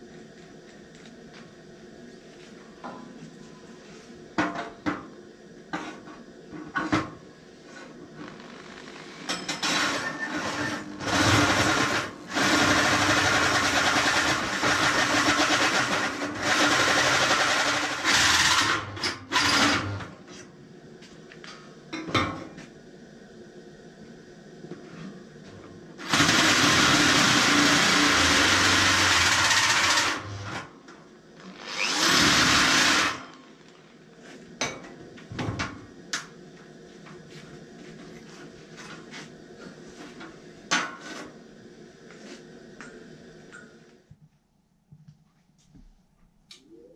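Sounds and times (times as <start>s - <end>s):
electric drill with hole saw cutting steel: 9.7s - 20.0s, 26.0s - 30.7s, 31.5s - 33.4s.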